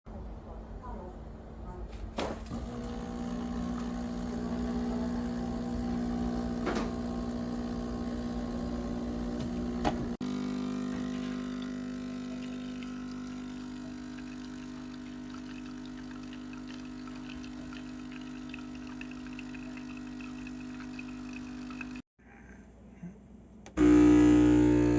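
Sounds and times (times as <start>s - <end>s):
espresso machine pump buzzing: 2.2s - 22.0s, 23.7s - 24.9s.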